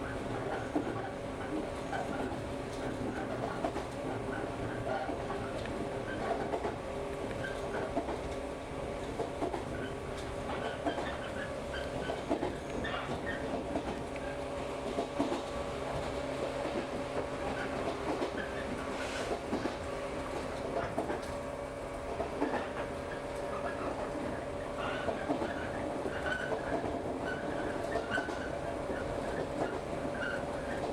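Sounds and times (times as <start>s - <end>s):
train rumbling: 0.0s - 30.9s
wheels clicking on track: 9.0s - 19.8s, 22.1s - 30.9s.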